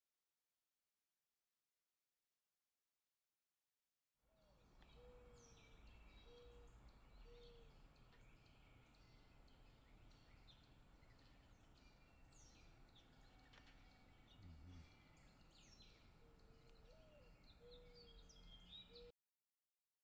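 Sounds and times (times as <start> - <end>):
songbirds chirping: 4.5 - 19.1.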